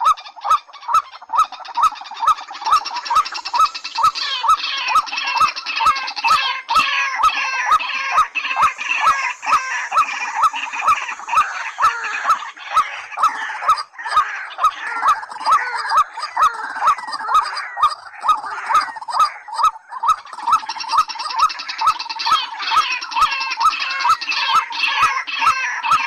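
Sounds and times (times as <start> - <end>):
waterhen hooked rising calls: 0.0 - 15.7
chorus of chattering bird calls: 0.0 - 26.0.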